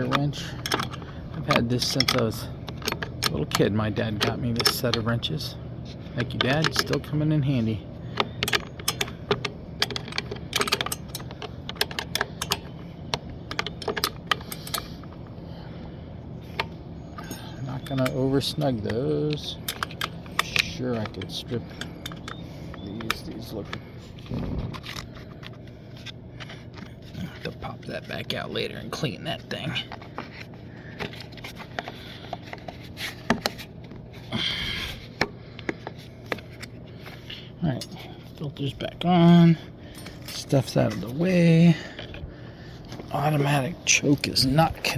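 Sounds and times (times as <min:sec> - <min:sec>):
low steady hum: 0:00.0 - 0:44.9
wrench clicking against bolts: 0:08.1 - 0:12.8, 0:16.6 - 0:23.8.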